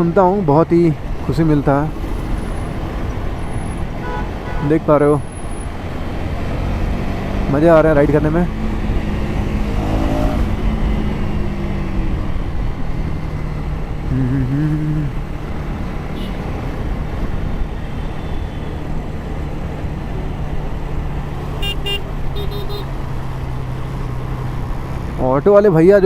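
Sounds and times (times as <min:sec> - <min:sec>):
vehicle horn beeping: 0:04.0 - 0:04.8, 0:16.2 - 0:16.5, 0:21.6 - 0:22.9.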